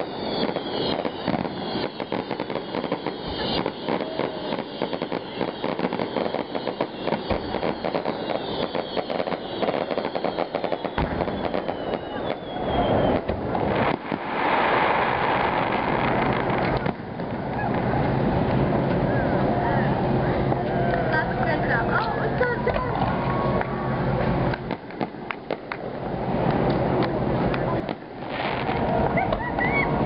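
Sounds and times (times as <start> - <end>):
firework falling whistle: 0.0 - 17.9, 27.8 - 30.0
firework bursts: 0.0 - 18.8, 24.4 - 30.0
fireworks crackling pops: 0.0 - 19.0, 22.0 - 29.8.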